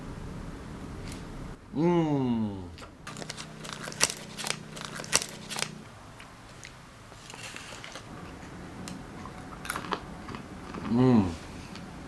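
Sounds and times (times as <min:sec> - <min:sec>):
handling noises: 0:02.8 - 0:08.6
utensils clicking on food container: 0:03.1 - 0:05.8.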